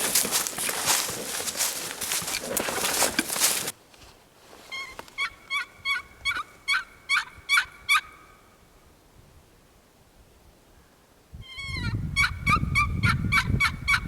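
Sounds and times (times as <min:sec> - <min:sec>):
footsteps crunching on dry ground: 0:00.0 - 0:05.2
turkey yelps: 0:04.7 - 0:08.4, 0:11.4 - 0:14.0.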